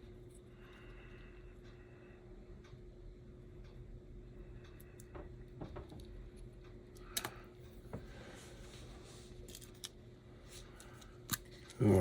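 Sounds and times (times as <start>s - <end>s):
faint steady hum: 0.0s - 12.0s
small parts clicking and tapping: 4.6s - 7.5s, 9.4s - 10.0s.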